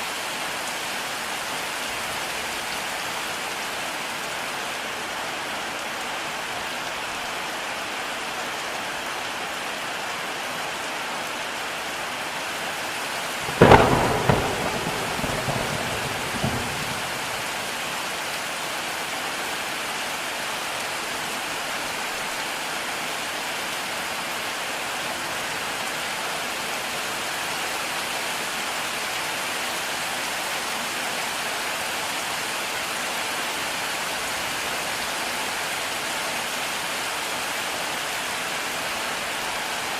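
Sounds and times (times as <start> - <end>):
heavy rain falling: 0.0 - 39.9
thunderclap rumbling: 13.4 - 17.6.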